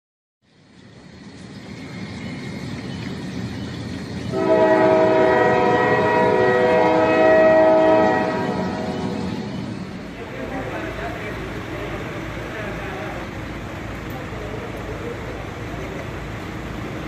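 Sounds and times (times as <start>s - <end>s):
heavy vehicle rumble: 0.4s - 17.0s
air horn chord: 4.3s - 9.4s.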